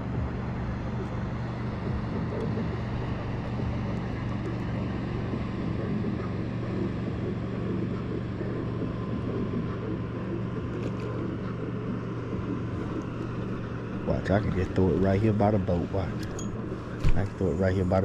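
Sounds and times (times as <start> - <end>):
boat motor humming: 0.0 - 18.0.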